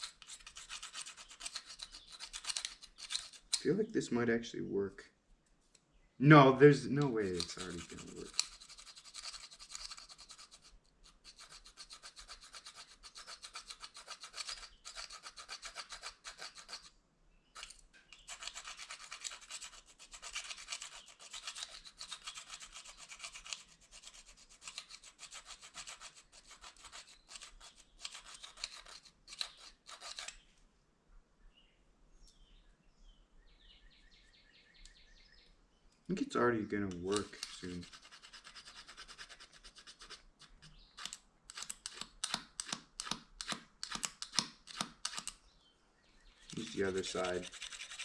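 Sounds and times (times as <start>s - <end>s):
plastic fork scraping plastic spoon: 0.0s - 3.7s, 7.0s - 16.9s, 17.6s - 30.4s, 36.9s - 45.3s, 46.5s - 48.0s.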